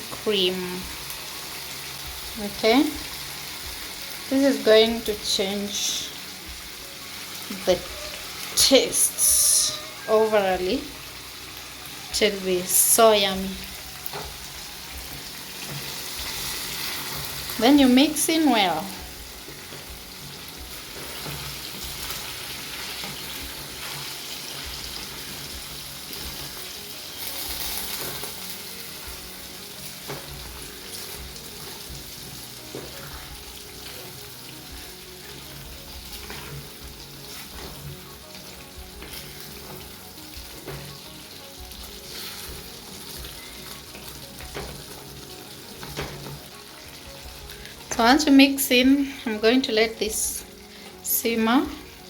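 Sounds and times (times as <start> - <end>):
curry sizzling in a pan: 0.0 - 52.0
spoon knocking and scraping pan: 14.0 - 14.6, 15.5 - 17.6, 19.1 - 26.7, 30.0 - 32.1, 36.1 - 38.0, 38.8 - 41.1, 43.9 - 46.5.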